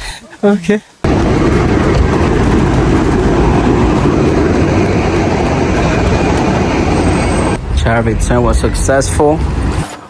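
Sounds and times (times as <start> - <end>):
car engine and road rumble: 1.1 - 9.9.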